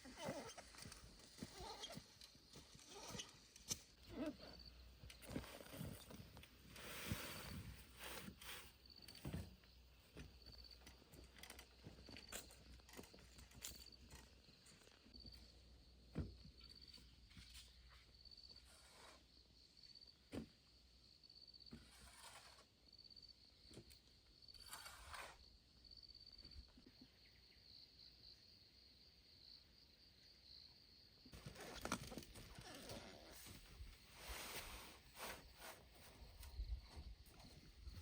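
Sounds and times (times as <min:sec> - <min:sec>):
insect chirping: 0:08.6 - 0:38.0.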